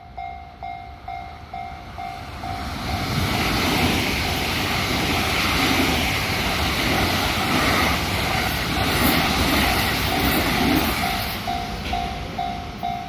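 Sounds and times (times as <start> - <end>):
crossing warning bell ringing: 0.0 - 3.6, 8.8 - 13.0
train rushing past: 0.6 - 13.0.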